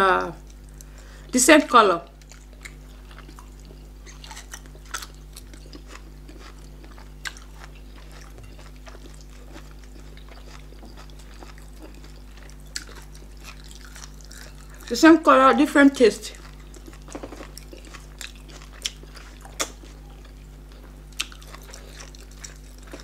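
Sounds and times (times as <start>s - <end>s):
steady low hum: 0.0s - 23.0s
soft chewing: 0.4s - 1.1s, 2.0s - 23.0s.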